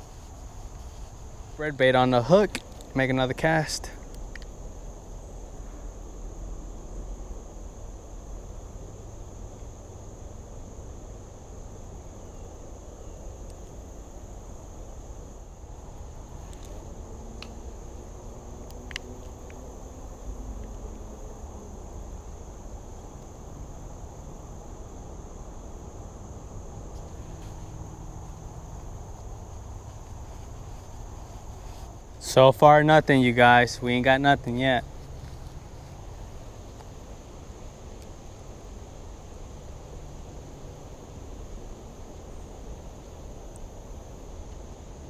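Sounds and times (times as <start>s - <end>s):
insect chorus: 0.0s - 45.0s
faint clicks: 4.0s - 4.5s, 18.6s - 19.6s.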